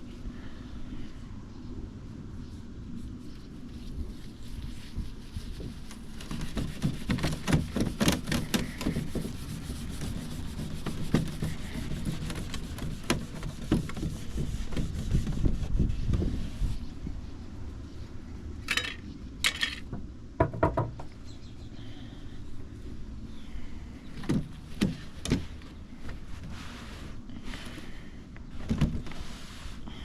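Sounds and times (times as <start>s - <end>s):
steel wool scrubbing wood: 3.0s - 16.7s
sharp knocks: 19.9s - 21.1s.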